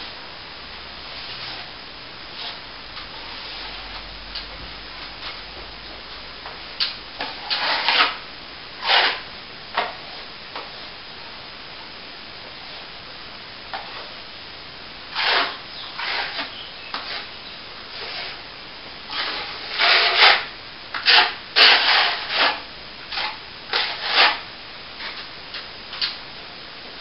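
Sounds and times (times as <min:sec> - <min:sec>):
tool rubbing on plaster: 0:02.4 - 0:04.0, 0:07.2 - 0:08.2, 0:08.8 - 0:09.2, 0:15.1 - 0:17.3, 0:17.9 - 0:18.4, 0:19.1 - 0:24.4.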